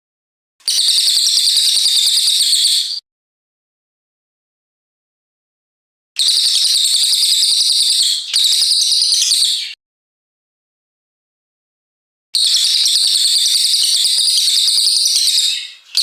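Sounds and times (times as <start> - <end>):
songbird singing: 12.4 - 16.0.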